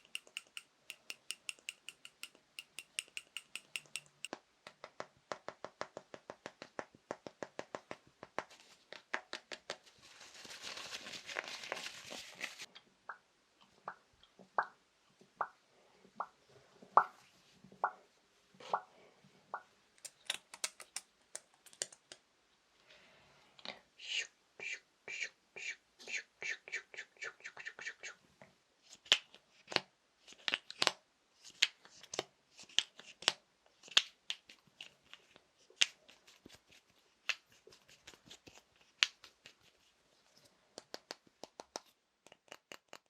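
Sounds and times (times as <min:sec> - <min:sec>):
fingers tapping small objects: 0:00.0 - 0:09.8, 0:20.0 - 0:22.2, 0:40.8 - 0:43.0
scratchy rustling: 0:09.8 - 0:12.7.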